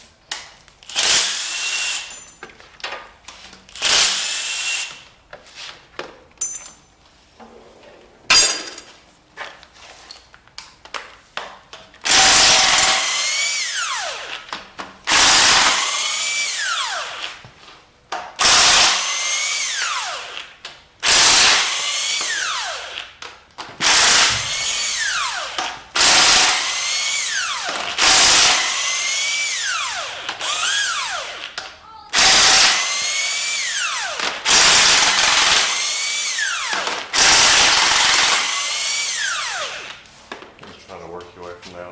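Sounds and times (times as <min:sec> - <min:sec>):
power tool whining: 0:12.1 - 0:14.5, 0:15.1 - 0:17.4, 0:18.4 - 0:23.2, 0:23.8 - 0:40.1.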